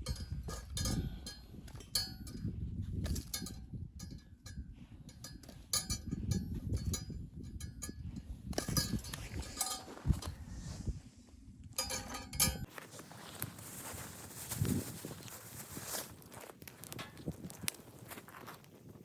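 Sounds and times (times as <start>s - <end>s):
light metallic clinks and knocks: 0.0s - 10.4s, 11.8s - 12.7s.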